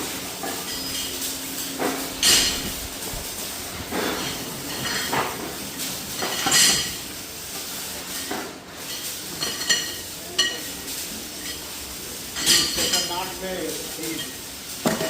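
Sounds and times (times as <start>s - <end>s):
steel parts clanking together: 2.1s - 3.4s.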